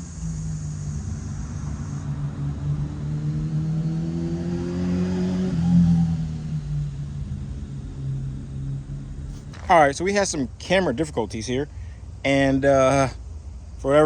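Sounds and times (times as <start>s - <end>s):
vehicle engine running: 0.0s - 3.6s, 6.6s - 14.0s.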